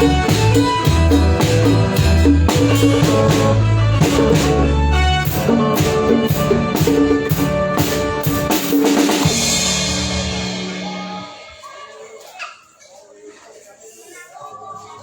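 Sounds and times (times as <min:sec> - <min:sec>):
cymbal crash: 0:00.0 - 0:11.6
drum kit beat: 0:00.0 - 0:11.7
live band playing: 0:00.0 - 0:11.9.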